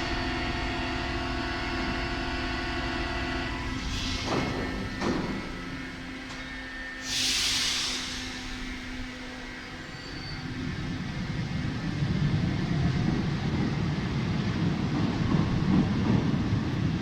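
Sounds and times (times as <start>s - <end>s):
train knocks: 1.6s - 7.2s, 12.9s - 17.0s
air release hiss: 3.8s - 5.8s, 7.0s - 9.0s.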